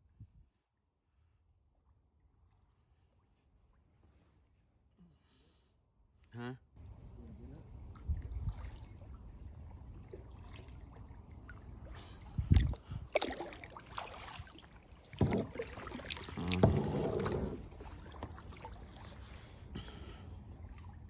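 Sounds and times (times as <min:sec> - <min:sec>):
water sloshing against hull: 0:06.8 - 0:21.0
paddle strokes splashing: 0:07.8 - 0:21.0.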